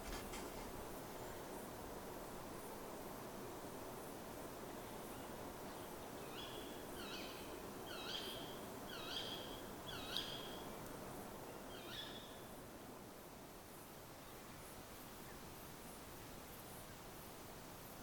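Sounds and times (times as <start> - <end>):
faint outdoor hiss: 0.0 - 18.0.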